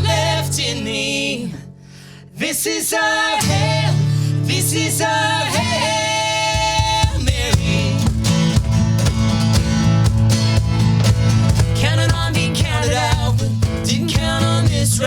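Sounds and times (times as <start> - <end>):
acoustic guitar strumming: 0.0 - 1.8, 3.4 - 15.0
person singing: 2.4 - 8.1, 11.8 - 15.0.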